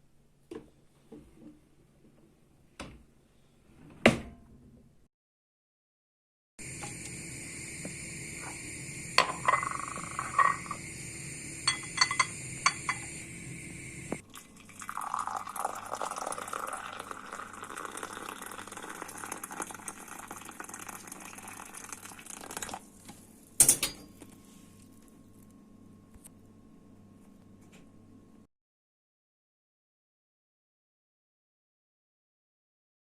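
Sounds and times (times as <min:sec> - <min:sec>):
steady hum: 0:06.6 - 0:14.2
liquid pouring: 0:06.6 - 0:23.0
dishes clinking: 0:09.2 - 0:10.8, 0:11.6 - 0:13.2, 0:23.6 - 0:24.2.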